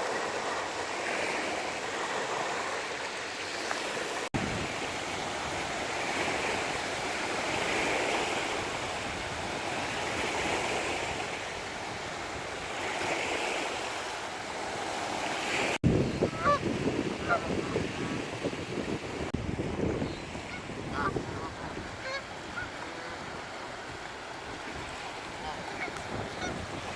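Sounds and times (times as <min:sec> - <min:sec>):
sea surf washing in: 0:00.0 - 0:26.9
honking bird calls: 0:16.0 - 0:17.8, 0:20.0 - 0:23.4, 0:25.3 - 0:26.7.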